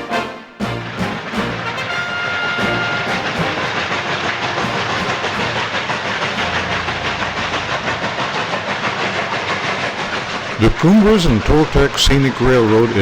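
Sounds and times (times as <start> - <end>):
rail clatter: 0.0 - 13.0
steam hissing: 0.0 - 13.0
faint regular pulsing: 0.6 - 10.7.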